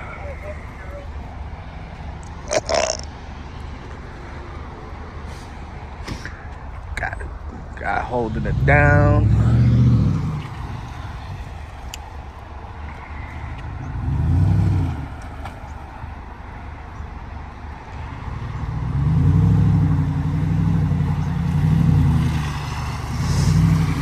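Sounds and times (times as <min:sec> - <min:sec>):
car engine revving: 0:06.2 - 0:24.0.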